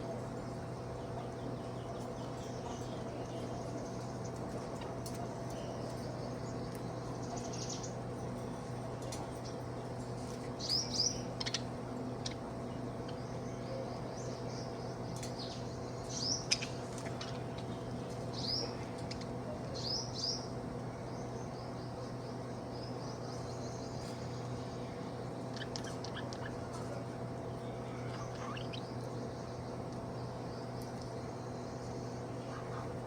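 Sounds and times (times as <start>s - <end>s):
steady low hum: 0.0s - 33.0s
budgerigar chirping: 28.2s - 28.9s.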